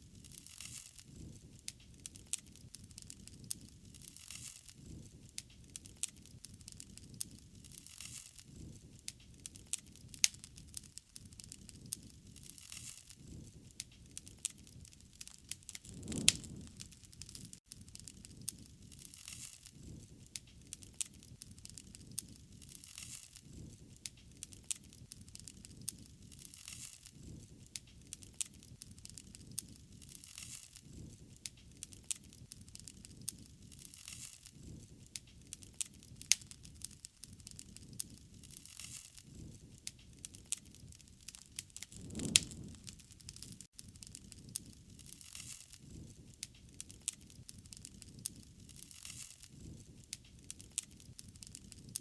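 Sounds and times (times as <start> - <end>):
wood fire crackling and popping: 0.1 - 52.0
low rush of flame: 15.2 - 17.6, 41.6 - 45.1.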